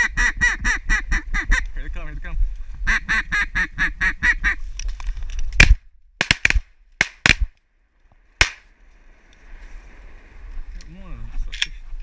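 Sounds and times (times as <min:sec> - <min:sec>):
shotgun shots: 0:05.6 - 0:07.5, 0:08.4 - 0:08.6.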